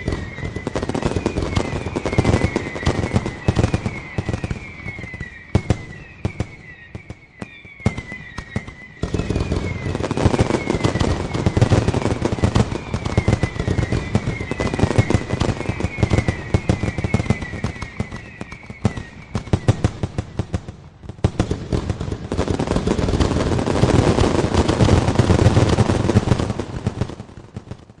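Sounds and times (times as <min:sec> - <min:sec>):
short falling whistles: 0:00.0 - 0:20.4
fireworks bangs and crackling: 0:00.0 - 0:28.0.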